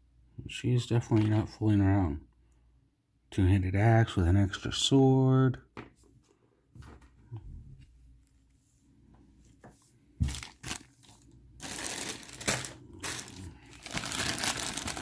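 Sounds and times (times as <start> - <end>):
plastic bag crinkling: 10.2 - 15.0.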